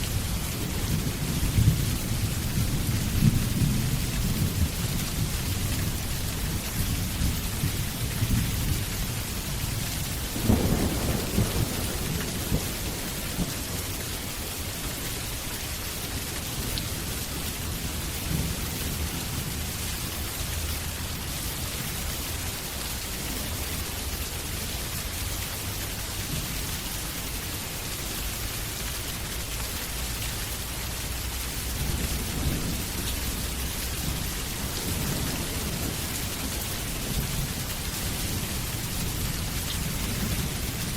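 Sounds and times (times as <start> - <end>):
heavy rain: 0.0 - 40.9
rolling thunder: 0.1 - 14.5, 31.6 - 40.9.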